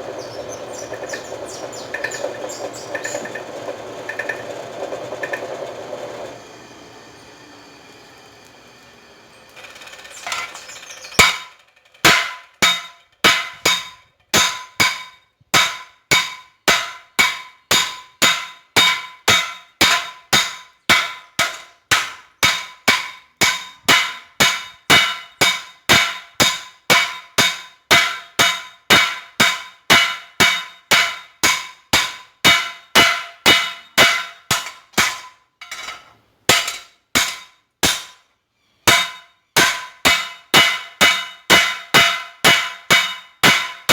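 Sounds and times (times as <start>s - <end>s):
hammer striking hot metal: 11.2s - 38.2s, 38.9s - 43.9s.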